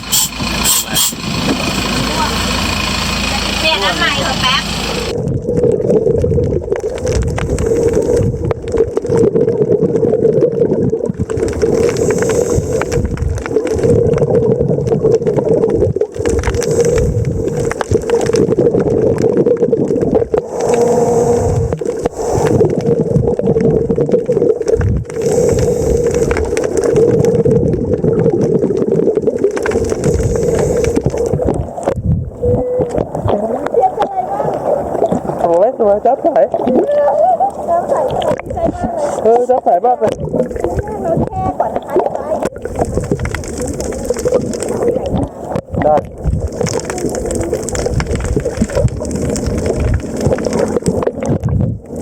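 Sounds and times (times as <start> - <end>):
boat engine droning: 0.0 - 5.6
water splashing: 0.0 - 52.0.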